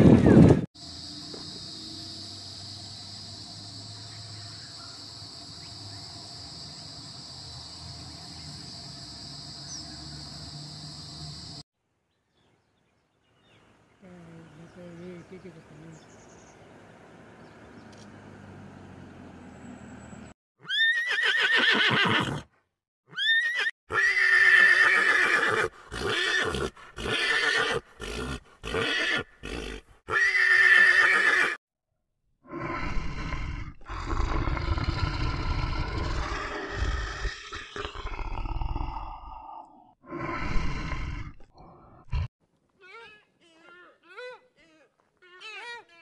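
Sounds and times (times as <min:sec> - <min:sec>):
horses whinnying: 0:20.6 - 0:22.5, 0:23.1 - 0:31.6
bear growling: 0:32.5 - 0:42.3.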